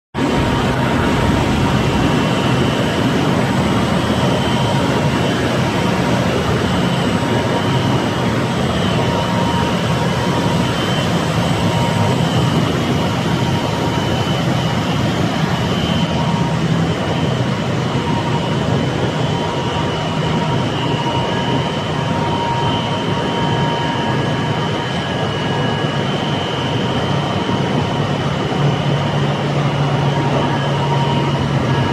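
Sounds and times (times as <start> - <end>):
low rumble: 0.2 - 3.9
machinery rushing noise: 0.2 - 21.3
high whine: 0.2 - 31.9.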